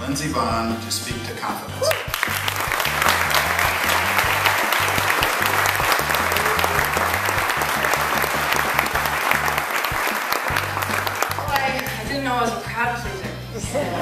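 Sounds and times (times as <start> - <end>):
music with steady bass line: 0.0 - 14.0
audience applauding: 1.8 - 12.1.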